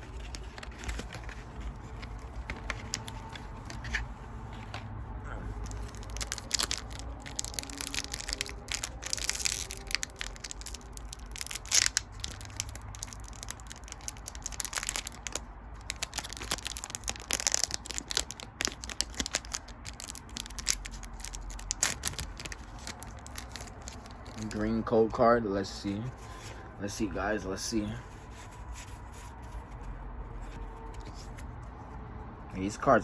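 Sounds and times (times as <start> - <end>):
foil wrapper crinkling and tearing: 0.0 - 3.9, 5.6 - 24.8.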